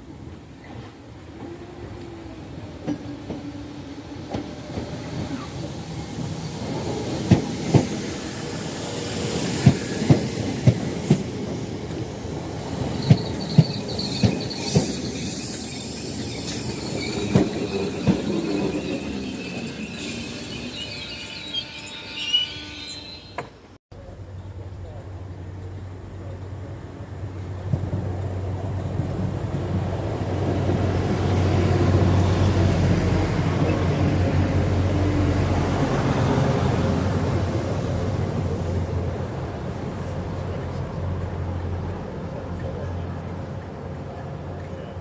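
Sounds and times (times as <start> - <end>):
high wheel squeal: 12.5 - 23.7.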